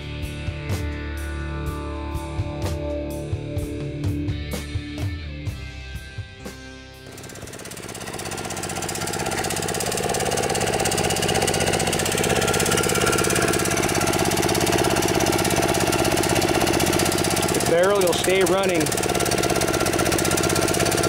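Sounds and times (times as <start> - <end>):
small engine running: 6.4 - 21.0.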